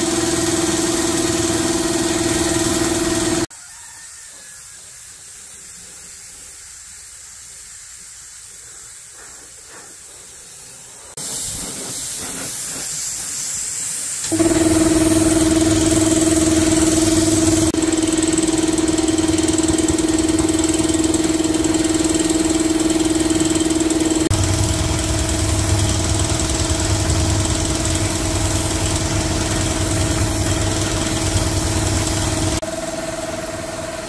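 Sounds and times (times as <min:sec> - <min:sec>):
machine humming: 0:00.0 - 0:03.5, 0:14.2 - 0:34.0
steady hiss: 0:04.4 - 0:14.3.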